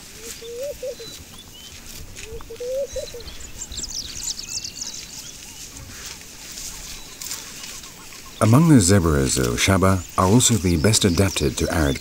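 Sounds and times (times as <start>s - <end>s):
low wavering bird call: 0.2s - 1.2s, 2.3s - 3.3s
high bird chirps: 2.4s - 5.8s.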